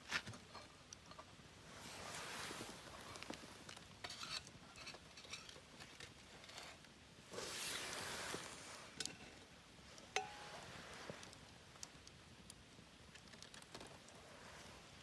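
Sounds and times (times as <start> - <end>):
faint clicks and rustling: 2.0 - 6.9, 7.5 - 15.0.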